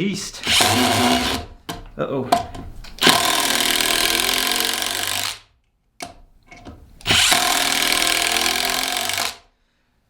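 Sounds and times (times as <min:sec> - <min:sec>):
impact driver hammering bolt: 0:07.0 - 0:09.4.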